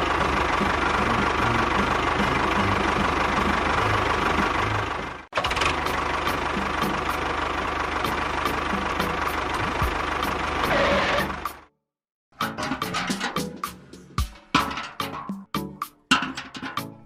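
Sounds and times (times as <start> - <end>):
engine running with low rumble: 0.0 - 11.7.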